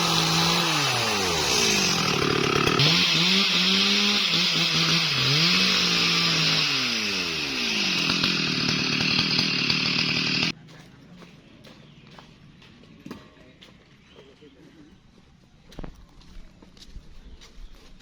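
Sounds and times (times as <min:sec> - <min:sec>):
chainsaw cutting wood: 0:00.0 - 0:10.6.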